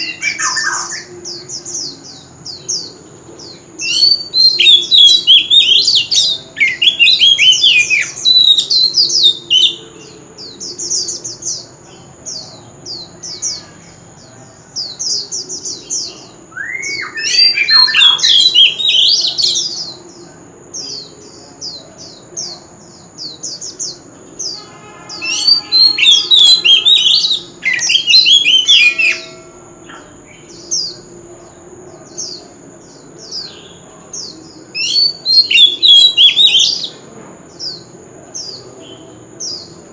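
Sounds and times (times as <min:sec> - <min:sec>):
bird singing whistles: 0:00.0 - 0:01.1, 0:03.8 - 0:09.8, 0:16.5 - 0:19.9, 0:24.4 - 0:29.6, 0:34.8 - 0:37.0.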